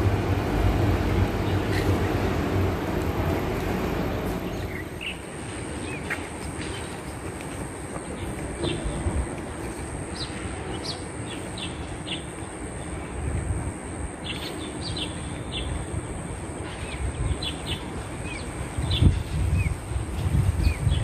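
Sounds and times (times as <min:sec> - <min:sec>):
steady low rumble: 0:00.0 - 0:06.0
small birds chirping: 0:16.6 - 0:19.9.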